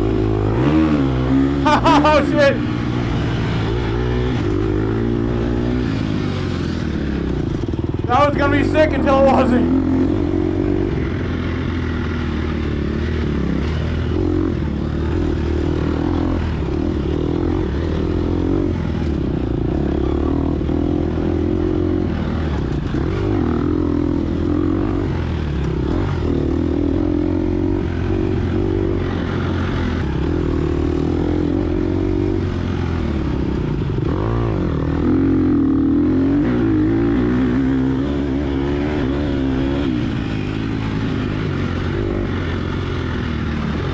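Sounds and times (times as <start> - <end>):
dirt bike engine revving: 0.0 - 3.7.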